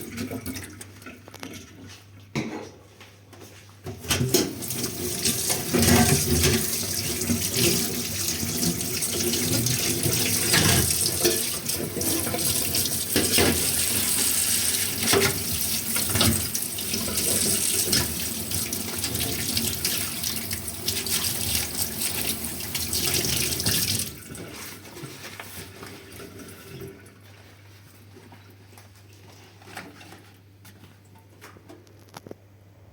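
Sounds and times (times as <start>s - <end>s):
tap water running into sink: 4.2s - 24.6s.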